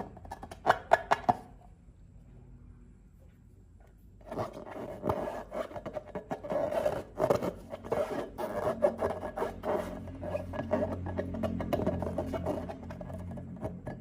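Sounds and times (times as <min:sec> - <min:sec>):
slime crackly scraping: 0:04.2 - 0:14.0.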